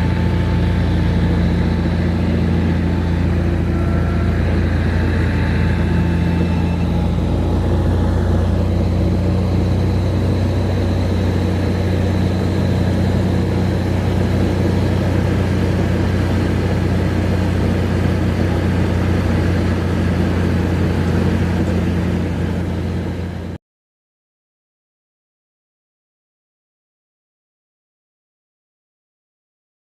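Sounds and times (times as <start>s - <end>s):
engine drone with high whine: 0.0s - 23.6s.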